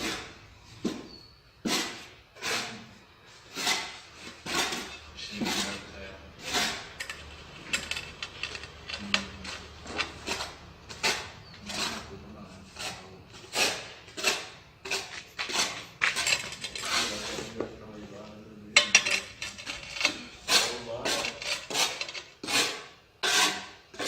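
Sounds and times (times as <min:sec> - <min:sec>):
trowel scraping mortar: 0:00.0 - 0:18.0, 0:18.9 - 0:24.0
small clicks and knocks: 0:07.0 - 0:10.2.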